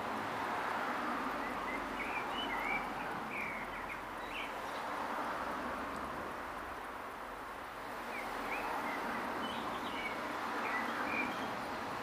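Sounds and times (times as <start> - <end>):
outdoor background noise: 0.0 - 12.0
bird chirping: 1.4 - 4.6, 8.1 - 11.6.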